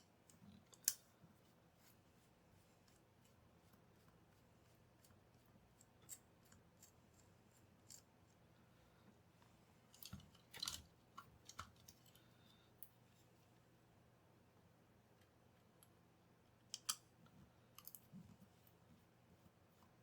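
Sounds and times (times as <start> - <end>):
faint steady hum: 0.0 - 20.0
small clicks and scrapes: 0.2 - 2.0, 2.6 - 8.4, 9.9 - 13.3, 16.6 - 18.8.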